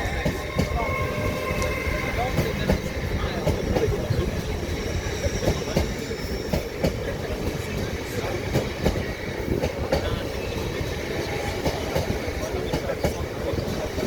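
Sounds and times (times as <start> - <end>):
train rumble: 0.0 - 14.0
train wheels clicking over rail joints: 0.0 - 14.0.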